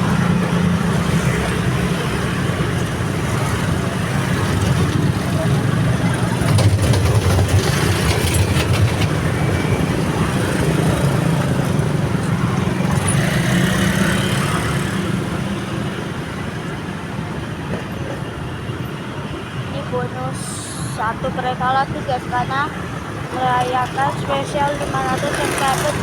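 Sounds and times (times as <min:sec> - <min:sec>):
train rumbling: 0:00.0 - 0:26.0
train wheels clicking over rail joints: 0:06.1 - 0:10.9.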